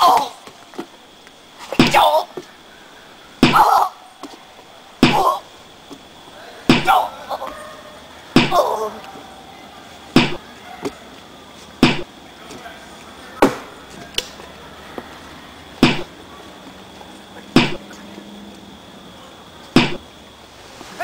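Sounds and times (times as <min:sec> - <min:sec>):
heavy ringing thuds: 0:03.4 - 0:03.7, 0:05.0 - 0:05.3, 0:06.7 - 0:07.0, 0:08.4 - 0:08.6, 0:10.2 - 0:10.4, 0:11.8 - 0:12.1, 0:15.8 - 0:16.2, 0:17.6 - 0:17.8, 0:19.8 - 0:20.0.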